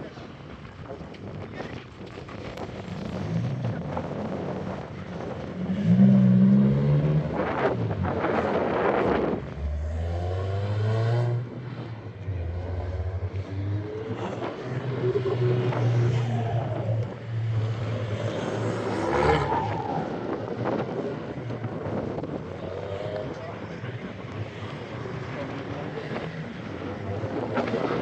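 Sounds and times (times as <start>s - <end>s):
car engines revving: 2.5s - 28.0s.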